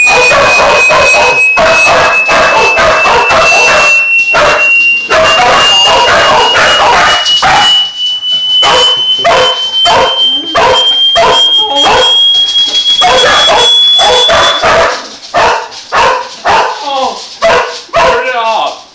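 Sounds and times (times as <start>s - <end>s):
high-pitched test tone: 0.0s - 14.9s
dogs barking and yelping: 0.0s - 16.8s, 17.4s - 18.2s.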